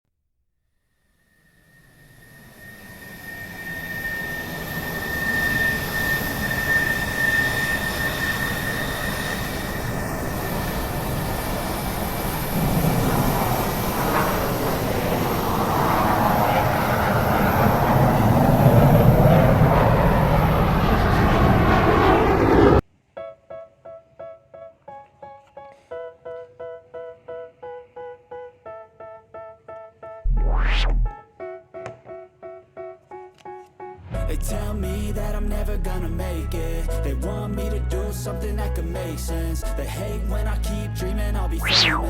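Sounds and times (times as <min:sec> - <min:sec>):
aircraft engine: 0:01.2 - 0:22.8, 0:41.6 - 0:42.0
high whine: 0:30.3 - 0:31.2, 0:41.6 - 0:42.0.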